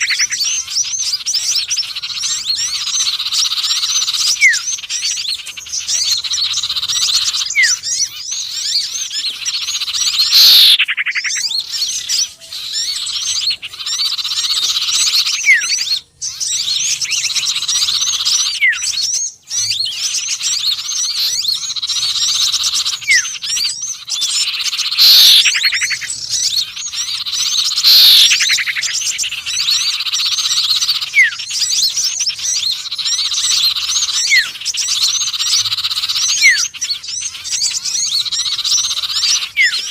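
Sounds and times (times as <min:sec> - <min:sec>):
songbird chirps and trills: 0:00.0 - 0:39.9
short rising chirps: 0:25.0 - 0:25.4, 0:27.8 - 0:28.4.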